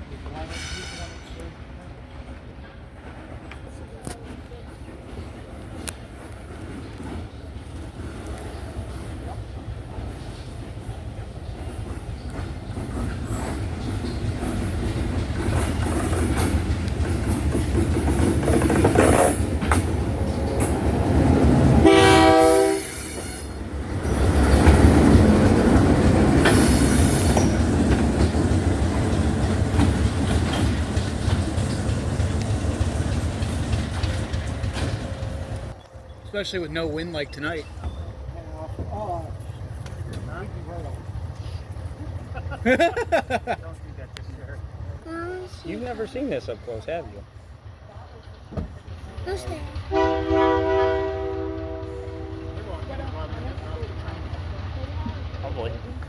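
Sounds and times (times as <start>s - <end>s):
train rumbling on track: 0.0s - 56.0s
rail clatter: 2.2s - 41.2s, 47.9s - 56.0s
train horn blast: 21.8s - 23.6s, 49.9s - 52.7s.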